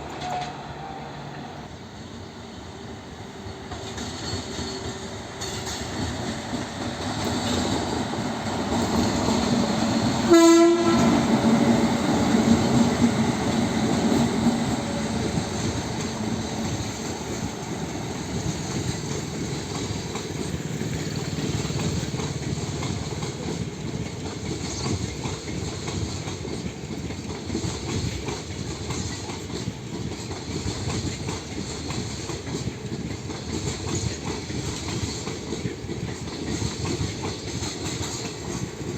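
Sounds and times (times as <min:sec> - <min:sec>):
train horn blast: 0:00.0 - 0:01.6, 0:10.2 - 0:11.5
train wheels clattering: 0:03.5 - 0:38.9.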